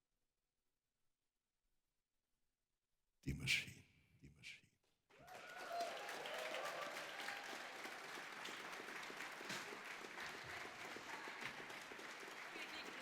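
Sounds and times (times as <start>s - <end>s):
audience applause: 5.2s - 13.0s.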